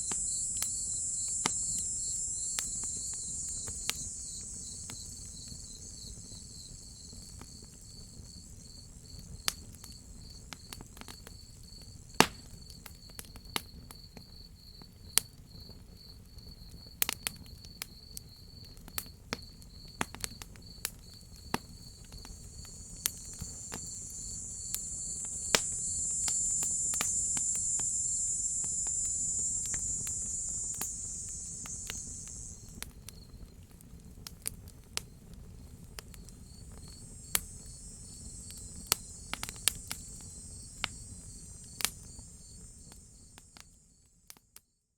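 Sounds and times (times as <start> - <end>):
cicada buzz: 0.0 - 10.7, 21.4 - 33.3, 36.2 - 43.7
crickets chirping: 0.0 - 13.2, 19.4 - 33.6, 35.8 - 44.1
wood fire crackling: 21.4 - 32.9.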